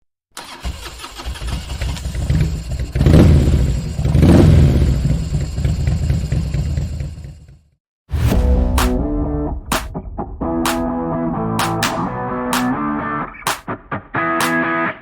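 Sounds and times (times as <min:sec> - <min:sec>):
motorcycle engine idling and revving: 0:01.1 - 0:07.8.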